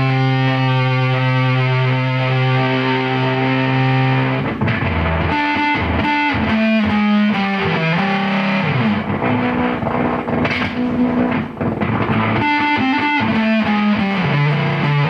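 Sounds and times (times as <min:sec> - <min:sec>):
fuzzed electric guitar: 0:00.0 - 0:15.0.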